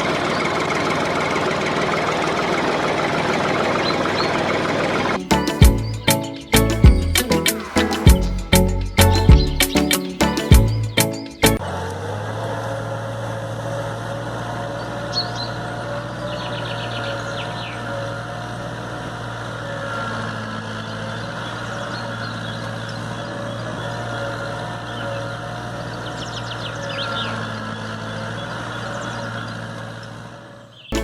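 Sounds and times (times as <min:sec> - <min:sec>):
birds chirping: 0:03.6 - 0:11.6, 0:14.7 - 0:31.0.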